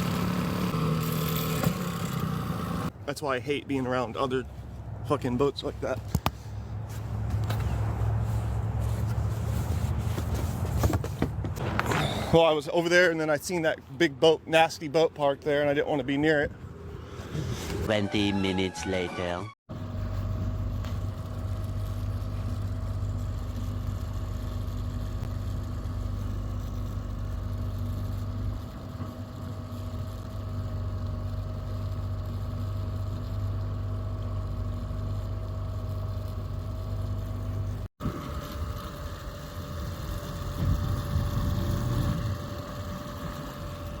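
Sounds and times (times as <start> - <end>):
motorboat engine running: 19.7 - 44.0.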